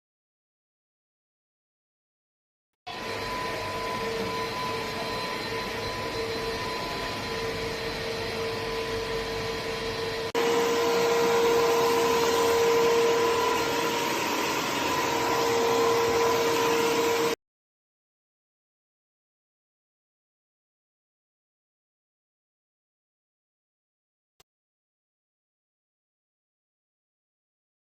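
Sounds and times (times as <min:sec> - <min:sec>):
vacuum cleaner running: 0:02.9 - 0:17.4.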